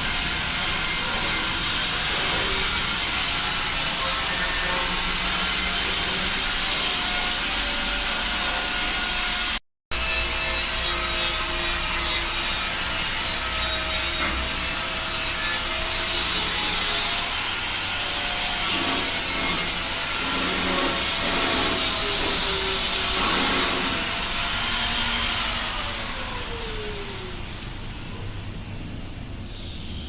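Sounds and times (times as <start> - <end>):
power tool grinding steel: 0.0 - 27.2.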